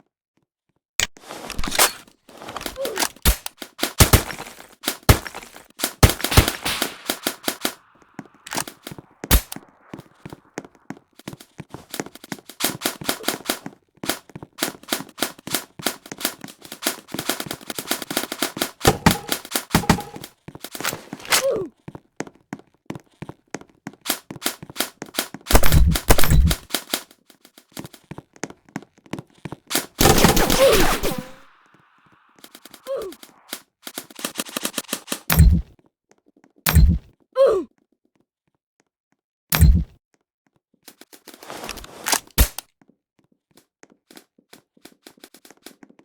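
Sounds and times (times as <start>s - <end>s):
airsoft guns firing: 3.2s - 10.4s, 12.6s - 21.3s, 24.1s - 27.0s, 29.7s - 31.6s.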